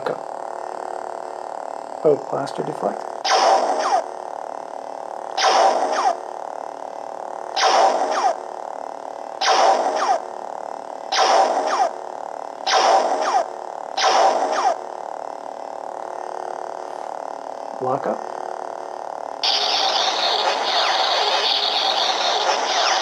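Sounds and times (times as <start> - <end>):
toy lightsaber hum: 2.0 - 4.2, 5.3 - 6.3, 7.5 - 8.6, 9.4 - 10.4, 11.1 - 15.0, 19.4 - 23.0
electronic zaps with falling sweep: 3.2 - 4.1, 5.3 - 6.2, 7.5 - 8.5, 9.4 - 10.3, 11.1 - 12.0, 12.6 - 15.0, 19.4 - 23.0.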